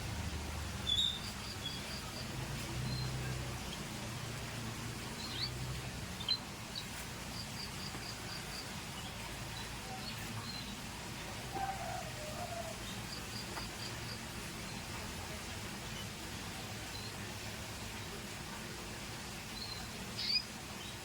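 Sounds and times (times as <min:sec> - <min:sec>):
low background noise: 0:00.0 - 0:21.0
canary chirping: 0:00.8 - 0:03.9.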